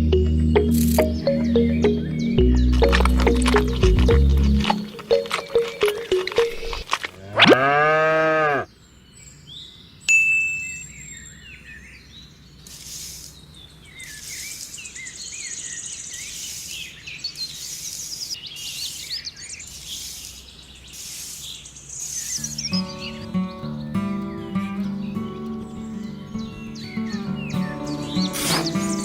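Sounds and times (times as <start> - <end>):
birds chirping: 0.0 - 7.1, 8.6 - 29.0
loud animal call: 27.8 - 29.0.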